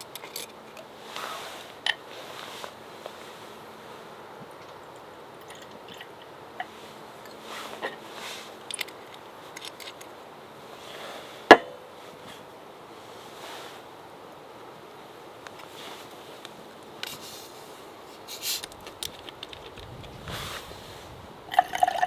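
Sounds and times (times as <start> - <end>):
light handling clicks and scrapes: 0.0 - 3.6, 5.4 - 10.2, 15.4 - 21.1
steady low hiss: 0.0 - 22.0.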